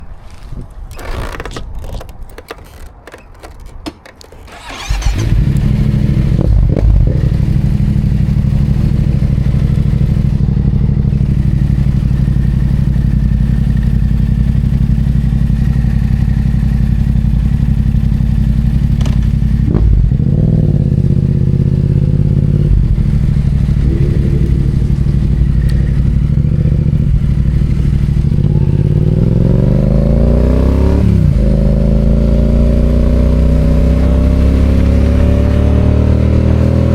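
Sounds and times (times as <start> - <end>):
clicks and knocks: 0.3 - 4.6
motorcycle engine idling: 5.7 - 29.4
throttle blips: 22.8 - 26.6.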